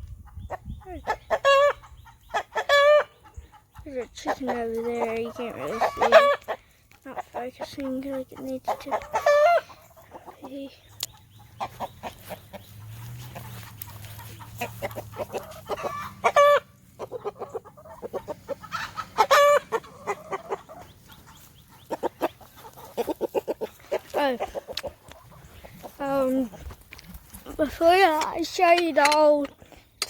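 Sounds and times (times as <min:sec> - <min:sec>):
chickens clucking: 0:00.0 - 0:30.0
loud chicken calls: 0:01.0 - 0:03.7, 0:08.9 - 0:10.4, 0:11.1 - 0:26.0.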